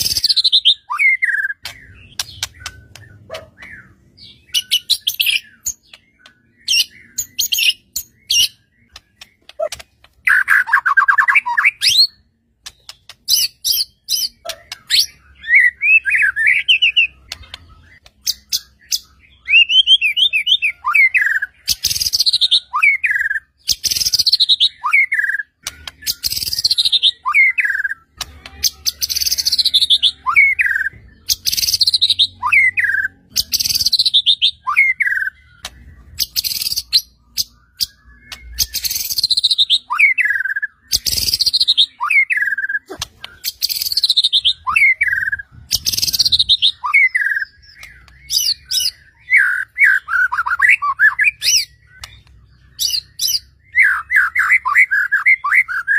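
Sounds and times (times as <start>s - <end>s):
songbird singing whistled phrases: 0.0s - 55.9s.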